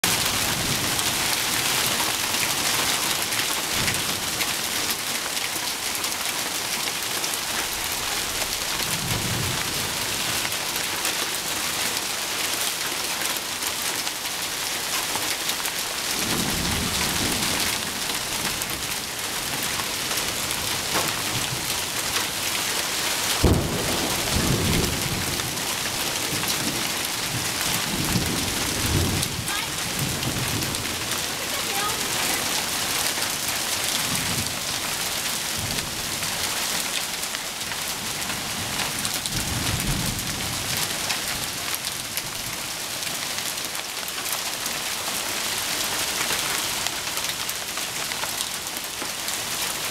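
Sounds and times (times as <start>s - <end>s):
heavy rain pouring: 0.0s - 49.9s
thunder rumbling: 23.3s - 36.4s
sharp thunder clap: 23.4s - 25.6s.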